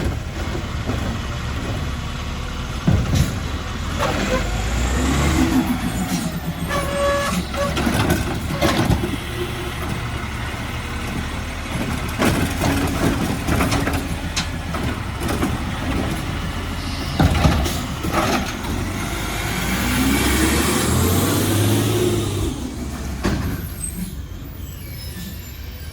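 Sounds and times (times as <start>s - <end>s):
clanks and knocks: 0.0s - 2.2s, 2.8s - 4.4s, 6.1s - 9.2s, 11.0s - 18.9s
garbage truck engine running: 0.0s - 25.9s.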